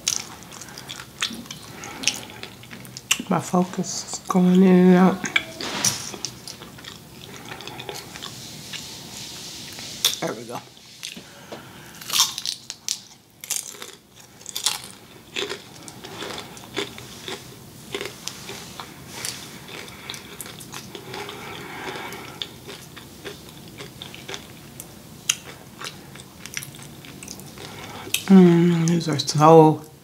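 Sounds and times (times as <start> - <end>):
chewing crispy food crunches: 11.9 - 29.2.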